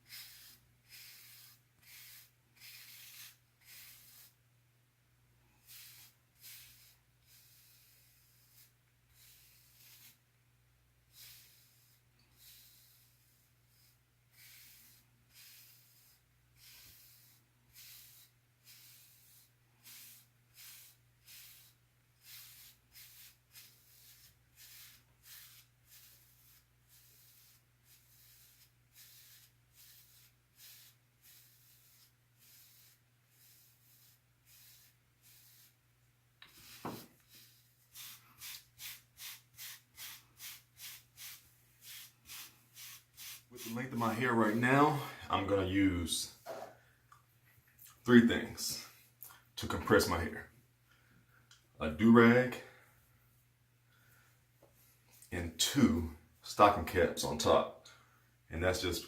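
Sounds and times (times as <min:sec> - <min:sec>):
brush swishing over hair: 0:11.2 - 0:35.8, 0:36.4 - 0:45.6.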